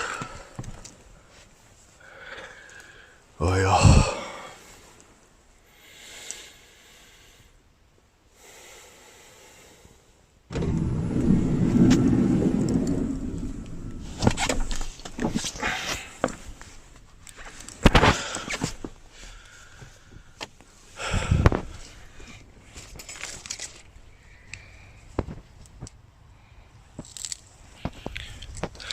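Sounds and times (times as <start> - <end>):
low mechanical rumble: 10.5 - 15.4.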